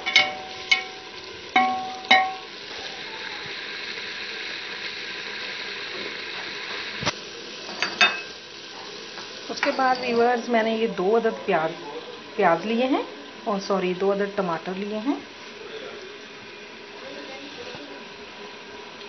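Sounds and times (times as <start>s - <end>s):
spatula knocking a ringing pot: 0.0s - 2.5s
meat sizzling in oil: 0.0s - 19.0s.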